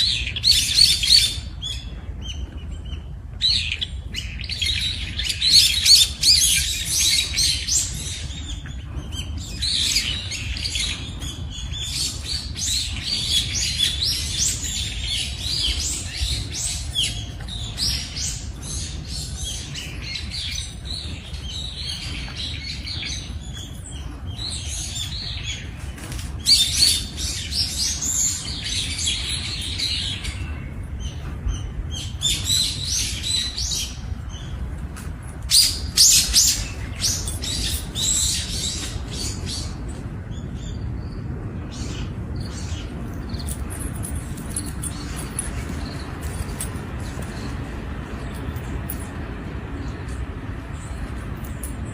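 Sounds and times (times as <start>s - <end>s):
small birds chirping: 0.0s - 34.9s, 35.5s - 51.9s
steady low rumble: 0.0s - 51.9s.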